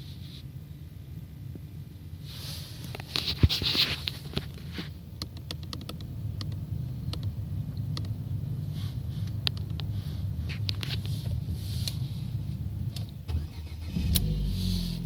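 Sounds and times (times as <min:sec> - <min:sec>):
car engine humming: 0:04.2 - 0:15.0.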